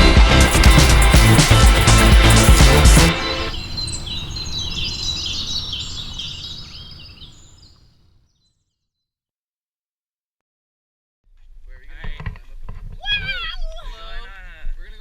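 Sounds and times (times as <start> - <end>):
birds chirping: 0.4 - 8.6.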